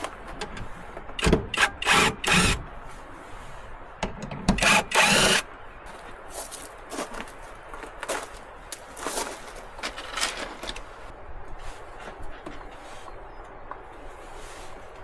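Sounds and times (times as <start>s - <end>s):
hand tool scraping wood: 0.0s - 2.7s, 4.6s - 5.4s.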